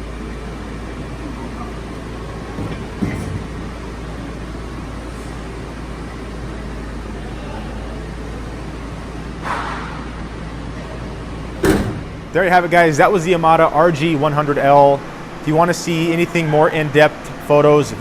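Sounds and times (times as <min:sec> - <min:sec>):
machine clunk: 0:02.4 - 0:03.9, 0:11.6 - 0:12.4
hydraulic pump motor humming: 0:11.5 - 0:18.0.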